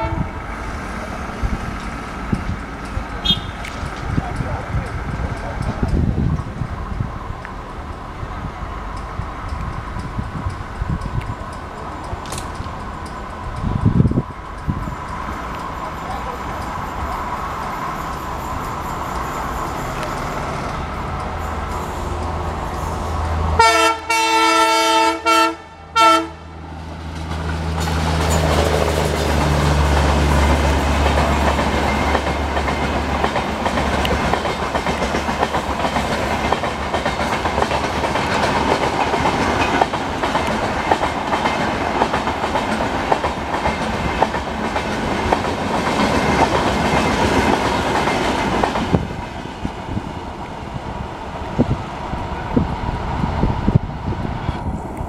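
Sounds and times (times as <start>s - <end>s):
train air horn blasts: 0.0s - 0.4s, 3.2s - 3.7s, 22.9s - 26.5s
locomotive engine droning: 0.0s - 43.6s
coaches clattering over rail joints: 0.6s - 23.5s, 26.9s - 50.1s.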